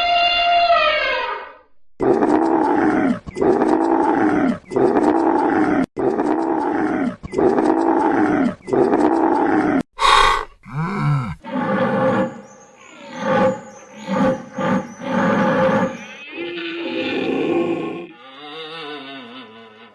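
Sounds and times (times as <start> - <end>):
higher animal call: 10.0 - 11.4
lion roaring: 10.0 - 11.4.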